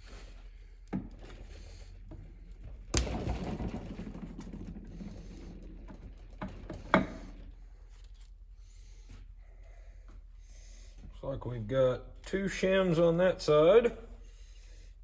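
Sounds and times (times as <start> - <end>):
metal rattling and scraping: 1.2 - 8.2.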